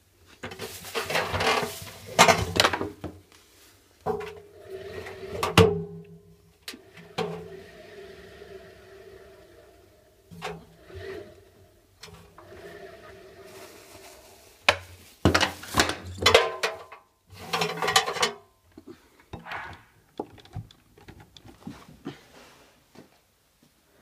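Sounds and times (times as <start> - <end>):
clattering: 14.7 - 18.4, 19.3 - 21.9.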